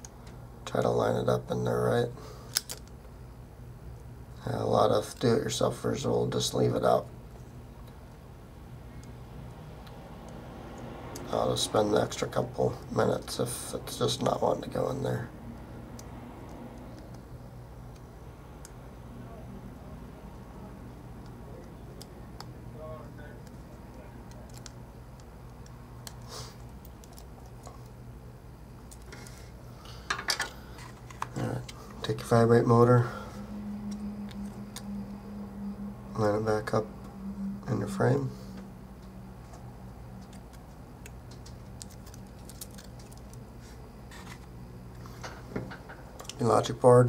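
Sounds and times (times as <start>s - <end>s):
steady low hum: 0.0s - 47.0s
light clicks of small parts: 2.5s - 3.1s, 40.2s - 43.4s.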